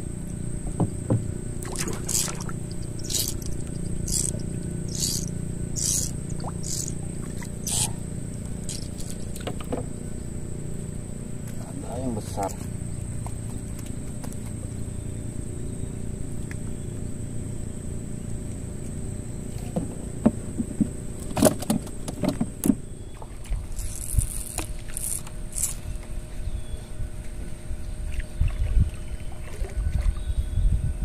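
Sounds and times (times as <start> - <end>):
small boat motor running: 0.0 - 31.0
gusty low rumble: 27.7 - 31.0.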